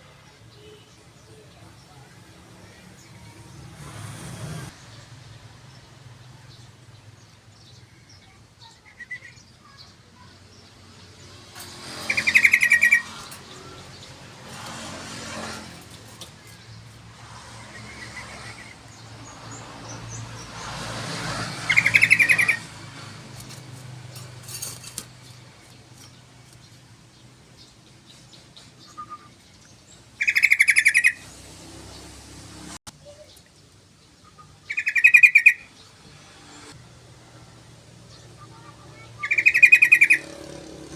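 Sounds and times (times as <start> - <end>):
bulbul rattling song: 11.2 - 31.2, 33.3 - 36.0, 38.1 - 40.9.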